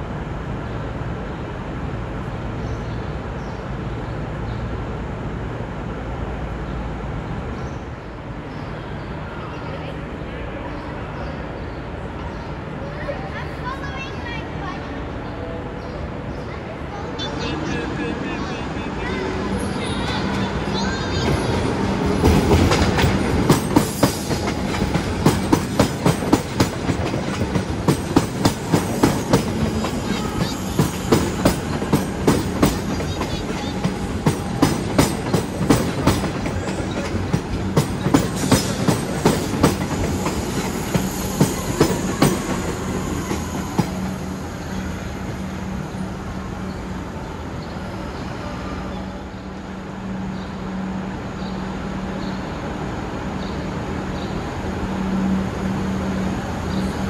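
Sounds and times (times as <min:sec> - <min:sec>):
electric train passing: 0:00.0 - 0:57.0
train wheels clacking on track: 0:19.9 - 0:45.4.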